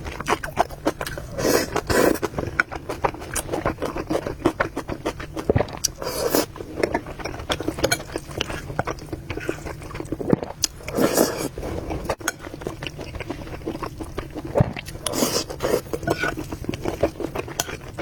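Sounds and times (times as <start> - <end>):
chewing noodles: 0.0 - 18.0
slurps: 1.0 - 2.3, 10.8 - 12.1.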